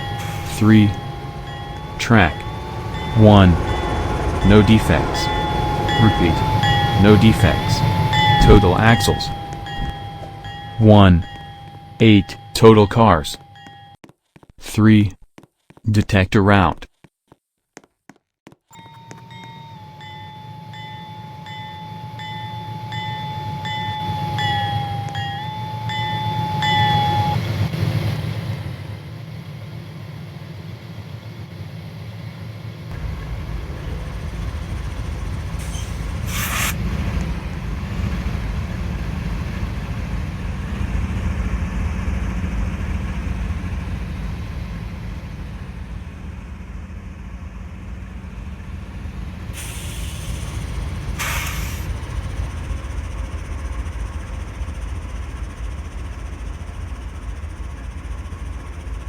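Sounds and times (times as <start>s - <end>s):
freight train rumbling: 0.0s - 13.9s, 18.7s - 59.0s
brief hissing bursts: 35.6s - 36.8s.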